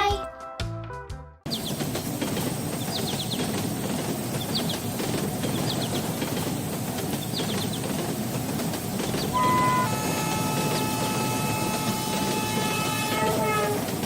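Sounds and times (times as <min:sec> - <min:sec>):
high bird chirps: 0:01.5 - 0:08.1
heavy machinery rumble: 0:01.5 - 0:14.0.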